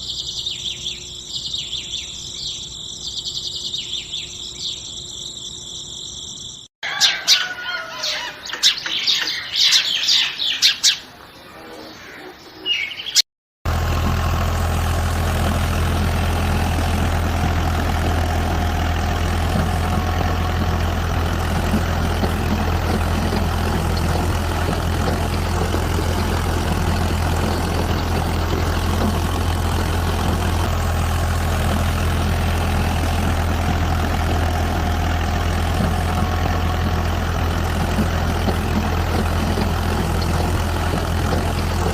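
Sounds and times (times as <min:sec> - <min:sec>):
birds chirping: 0:00.0 - 0:13.3, 0:15.4 - 0:41.9
low engine idling: 0:13.7 - 0:41.9.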